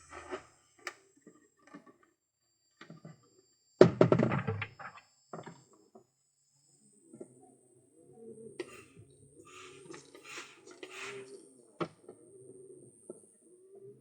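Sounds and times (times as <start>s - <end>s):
pigeons tapping and scratching: 9.5s - 12.0s.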